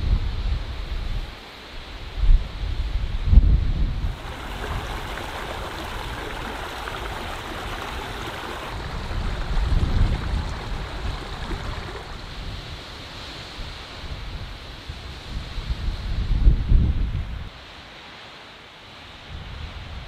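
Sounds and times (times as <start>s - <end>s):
wind buffeting microphone: 2.4s - 17.4s
water rushing in a stream: 4.0s - 14.2s.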